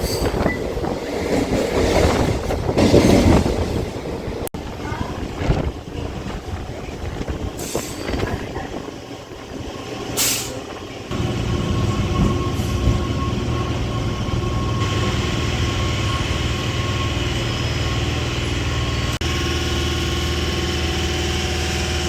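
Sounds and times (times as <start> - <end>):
electric train humming with whine: 10.9 - 22.0.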